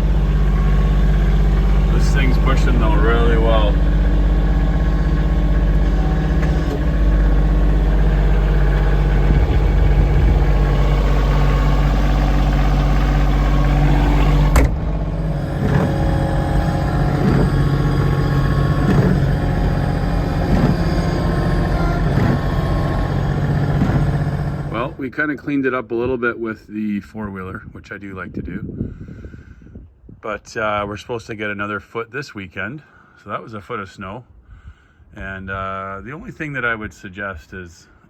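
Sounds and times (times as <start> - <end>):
tractor diesel engine running: 0.0 - 25.0
sudden click: 14.5 - 15.0.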